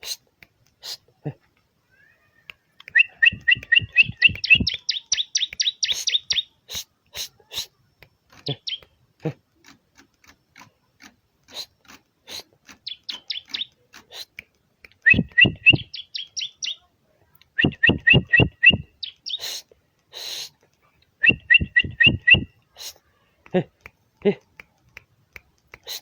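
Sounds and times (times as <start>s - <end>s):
bird calling sharp notes: 2.9s - 6.8s, 15.0s - 16.8s, 17.6s - 19.6s, 21.2s - 22.9s
bursts of hiss: 5.8s - 7.8s, 19.3s - 20.7s.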